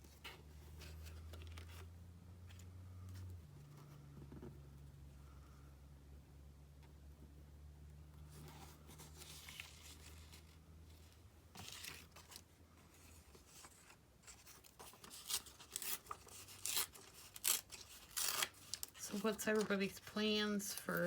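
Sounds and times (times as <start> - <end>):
paper rustling: 8.3 - 11.0, 11.6 - 21.0.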